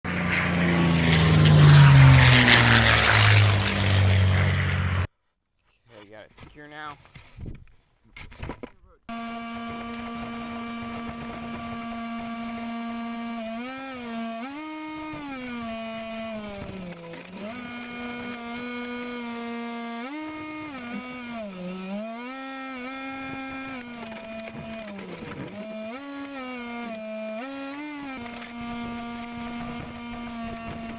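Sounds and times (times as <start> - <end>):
model boat motor whining: 9.1 - 30.9.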